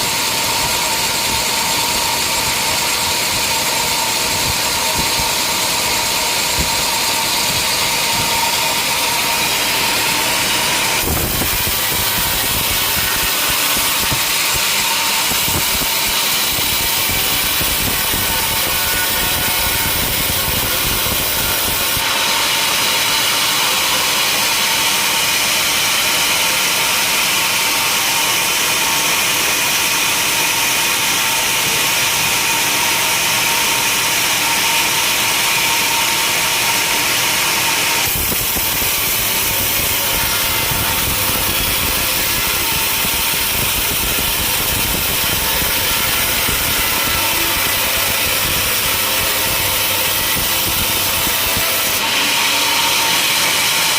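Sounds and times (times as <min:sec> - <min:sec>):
sawmill machinery running: 0:00.0 - 0:53.9.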